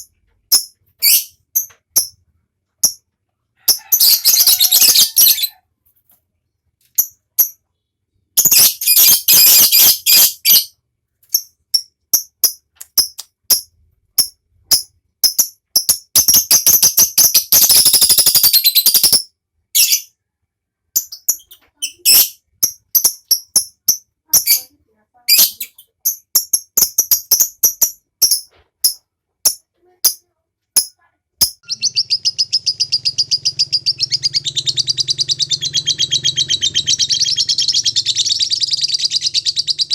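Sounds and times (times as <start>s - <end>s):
lovebird chattering trill: 30.8s - 39.9s
low hum: 31.6s - 39.9s.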